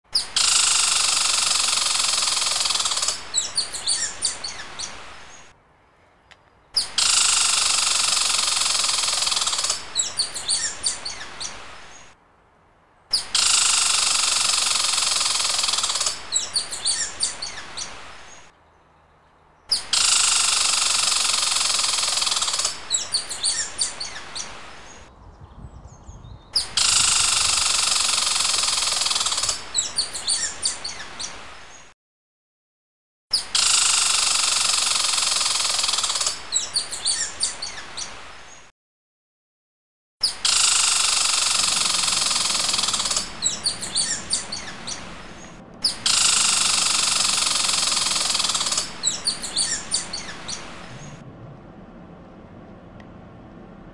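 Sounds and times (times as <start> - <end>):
dense buzzing hiss: 0.4 - 5.5, 6.9 - 12.2, 13.2 - 18.5, 19.8 - 25.1, 26.8 - 31.8, 40.4 - 51.3
high bird chirps: 2.9 - 5.5, 8.6 - 12.1, 15.4 - 18.8, 21.6 - 28.6, 29.3 - 31.4, 40.2 - 51.2.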